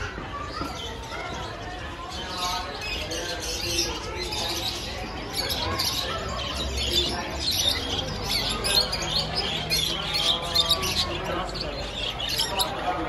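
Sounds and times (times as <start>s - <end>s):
budgerigars chirping: 2.3s - 13.0s.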